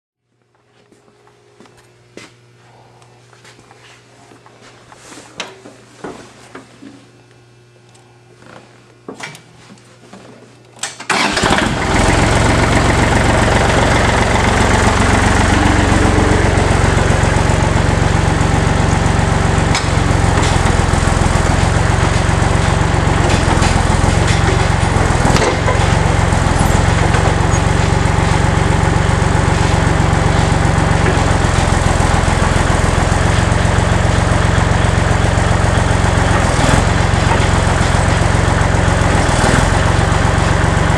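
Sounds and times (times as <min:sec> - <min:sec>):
tractor engine running: 0:11.1 - 0:40.9.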